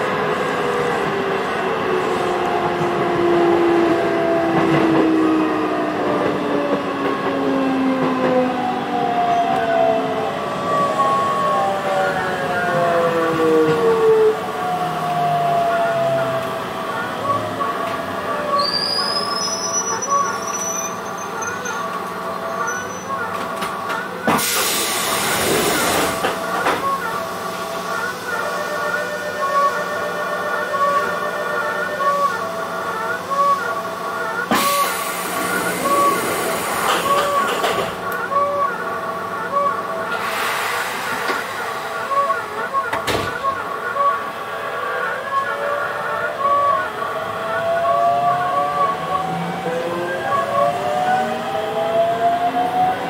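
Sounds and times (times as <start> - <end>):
train inverter whine: 0.0 - 53.0
wheel and track noise: 34.2 - 38.3.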